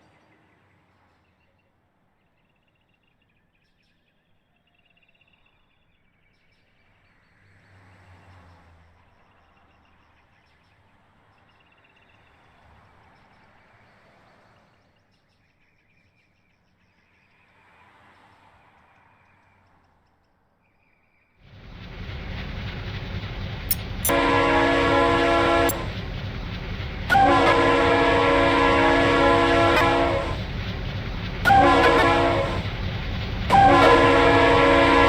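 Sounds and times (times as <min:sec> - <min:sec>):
birds chirping: 0:20.7 - 0:35.0.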